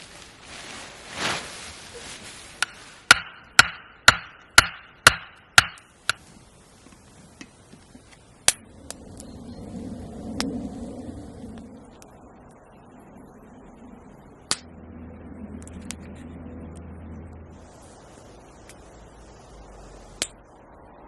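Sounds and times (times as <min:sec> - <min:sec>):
hammer blows ringing: 0:03.1 - 0:06.2.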